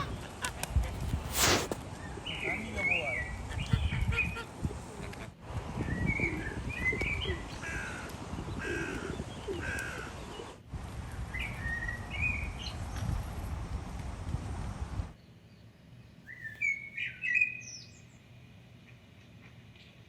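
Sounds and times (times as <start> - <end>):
wind rumble on microphone: 0.0 - 2.3, 3.2 - 15.2
birds calling: 0.0 - 10.6, 15.2 - 18.2.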